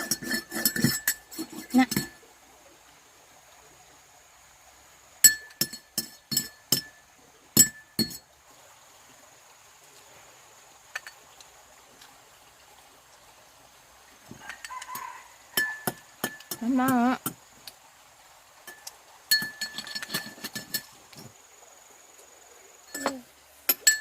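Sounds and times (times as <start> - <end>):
glass clinking together: 0.0 - 2.2, 5.2 - 7.0, 7.6 - 8.2, 15.5 - 16.6, 18.7 - 21.0, 22.9 - 24.0
faint ticks: 10.9 - 12.7, 16.5 - 17.8.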